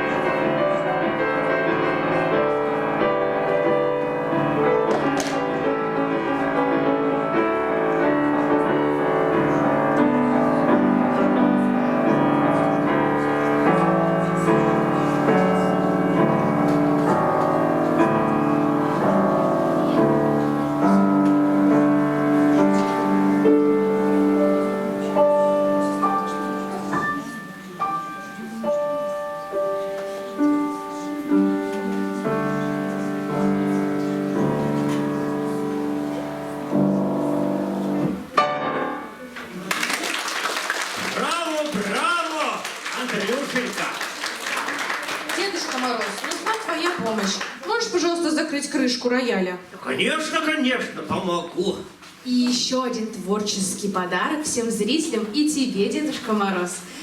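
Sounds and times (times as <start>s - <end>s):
grand piano playing chords: 0.0s - 39.4s.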